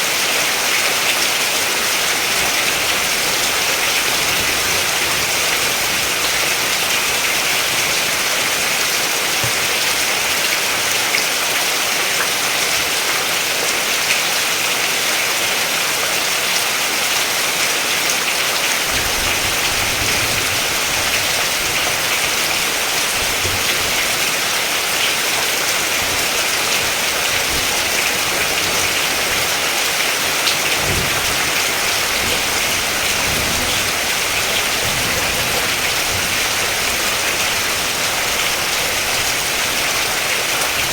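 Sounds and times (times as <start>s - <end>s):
steady rain hiss: 0.0s - 40.9s
raindrop ticks: 1.1s - 11.2s, 18.8s - 40.9s.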